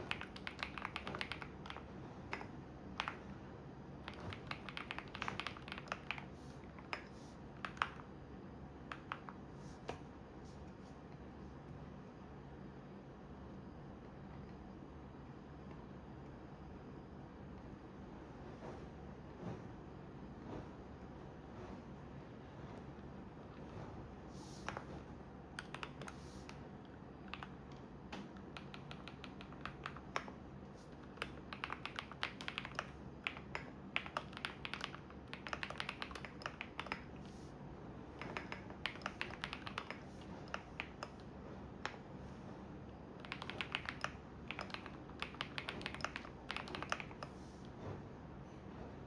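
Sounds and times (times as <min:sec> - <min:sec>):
computer keyboard key clicks: 0:00.0 - 0:03.2, 0:04.0 - 0:08.1, 0:08.9 - 0:10.0, 0:25.6 - 0:26.6, 0:27.2 - 0:30.3, 0:30.9 - 0:37.2, 0:38.2 - 0:41.2, 0:43.2 - 0:47.4
washing machine humming: 0:00.0 - 0:49.0.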